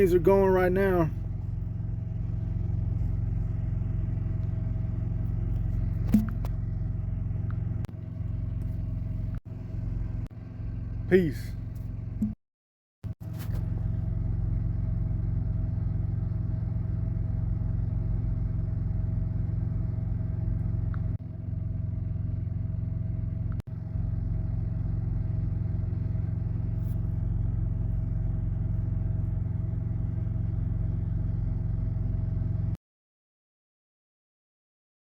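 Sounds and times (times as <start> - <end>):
truck engine drone: 0.0 - 12.4, 13.1 - 32.8.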